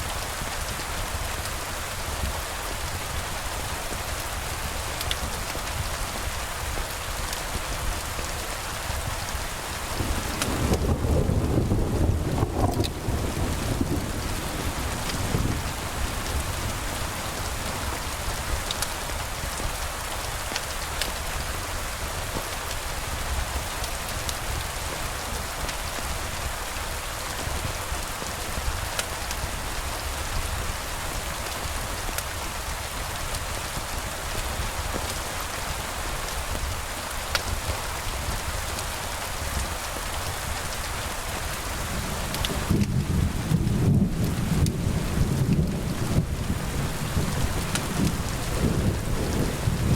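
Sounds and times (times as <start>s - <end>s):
steady rain falling: 0.0s - 49.9s
low rumble of thunder: 8.9s - 19.6s, 41.8s - 49.9s.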